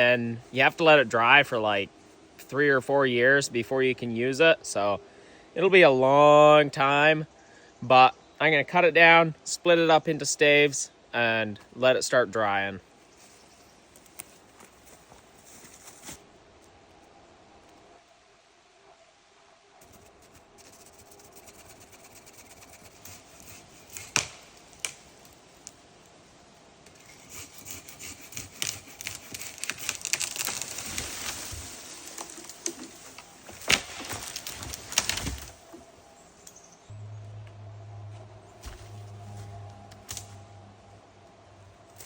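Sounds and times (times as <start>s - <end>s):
saw rasping through wood: 27.0s - 30.2s.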